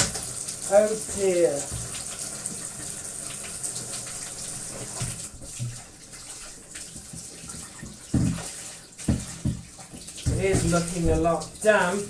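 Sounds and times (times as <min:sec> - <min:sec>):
tap running into sink: 0:00.0 - 0:12.0
object thumping sink: 0:07.8 - 0:11.5
soft knocks: 0:08.1 - 0:08.5, 0:09.1 - 0:09.7.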